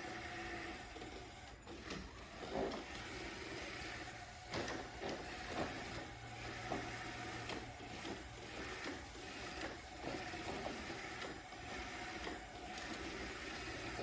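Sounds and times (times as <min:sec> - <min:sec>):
robot vacuum whirring: 0:00.0 - 0:14.0.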